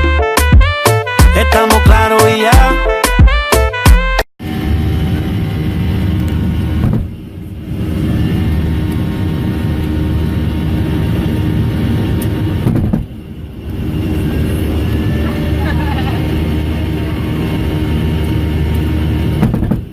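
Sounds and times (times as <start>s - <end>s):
jet airliner engine rumble: 4.4s - 19.9s
steady humming tones: 4.4s - 19.9s.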